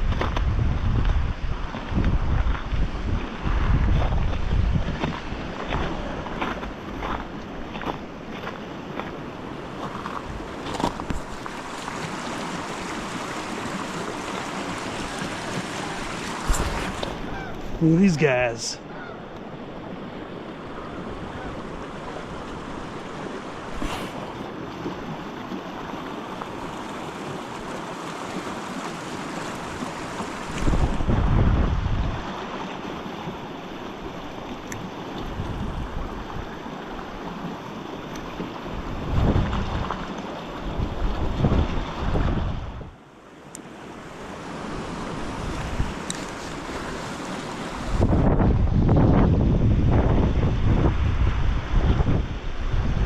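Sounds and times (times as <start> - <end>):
wind buffeting microphone: 0.0 - 8.4, 14.7 - 17.8, 30.5 - 32.3, 35.2 - 36.6, 38.7 - 43.0, 44.7 - 53.0
water swish: 4.4 - 18.8, 21.6 - 31.0
river water rushing: 5.2 - 30.9, 43.1 - 48.2.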